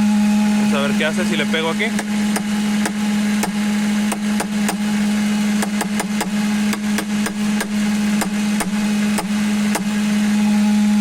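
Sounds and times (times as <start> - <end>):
car engine idling with drone: 0.0 - 11.0
sharp knocks on valve: 5.6 - 9.9.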